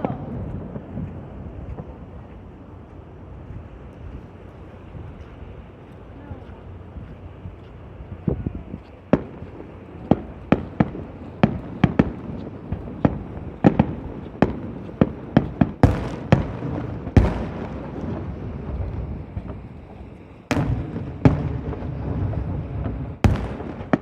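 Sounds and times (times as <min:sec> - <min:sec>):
fireworks bangs: 0:09.1 - 0:24.0
heavy fireworks booms: 0:09.1 - 0:24.0.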